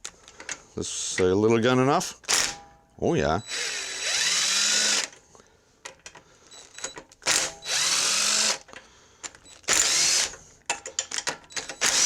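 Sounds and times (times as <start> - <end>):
light metallic clicks of tools: 10.7 - 11.8.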